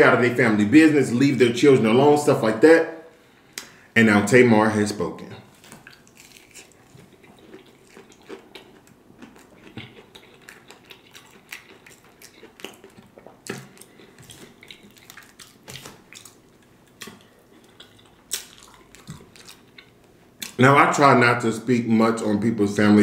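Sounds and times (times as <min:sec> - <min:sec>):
wet chewing mouth sounds: 0:05.7 - 0:20.6.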